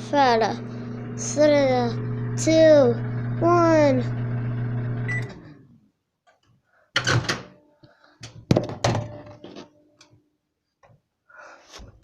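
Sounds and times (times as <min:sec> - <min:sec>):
microwave oven humming: 0:00.0 - 0:05.8.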